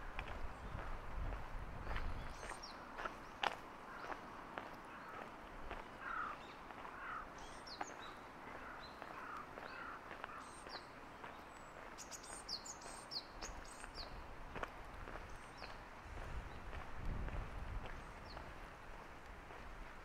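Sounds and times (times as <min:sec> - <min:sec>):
faint footsteps: 0:00.0 - 0:20.0
birds chirping: 0:01.8 - 0:14.3, 0:15.1 - 0:16.9, 0:17.9 - 0:18.6.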